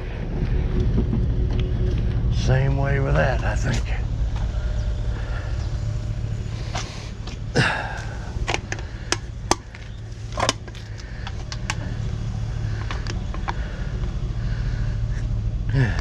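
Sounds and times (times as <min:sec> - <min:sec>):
vehicle engine rumbling: 0:00.0 - 0:16.0
sharp clicks and knocks: 0:08.4 - 0:12.0.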